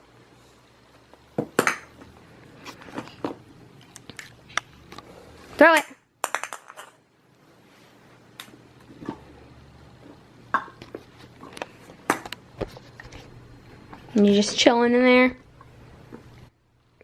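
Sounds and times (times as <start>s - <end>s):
plastic toys clattering: 6.2s - 7.0s.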